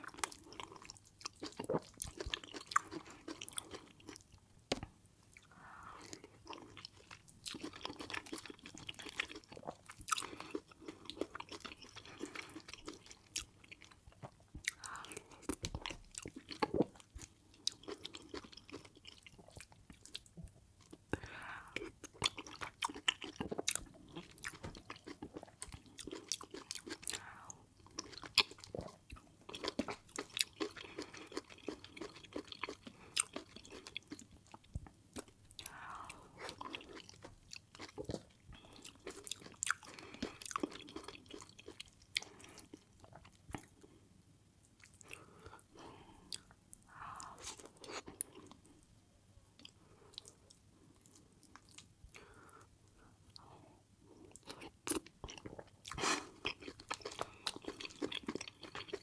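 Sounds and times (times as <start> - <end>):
person chewing and lip smacking: 0.0 - 43.9, 46.3 - 48.8, 49.6 - 53.4, 54.2 - 59.0
food crunch: 54.4 - 59.0.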